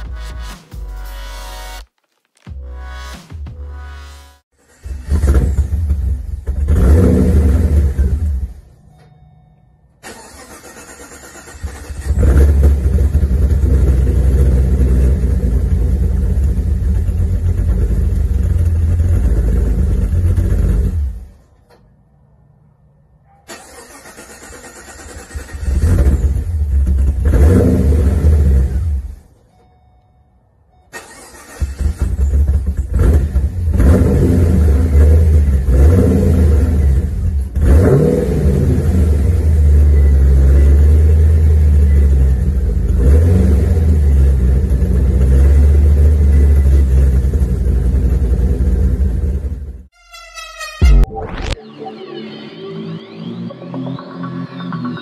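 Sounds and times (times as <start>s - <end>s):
car engine revving: 4.6s - 8.7s, 10.0s - 21.4s, 24.0s - 29.2s, 31.0s - 49.7s.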